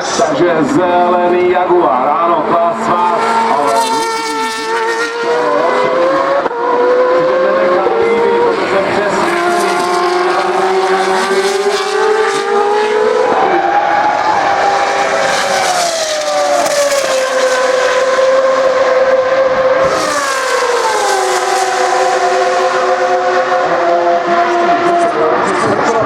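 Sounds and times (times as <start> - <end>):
racing car engine at high revs: 0.0 - 26.0.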